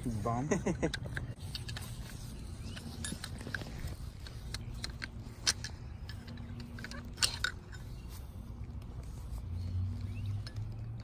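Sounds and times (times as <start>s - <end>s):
metal tools clinking: 0.0s - 8.5s.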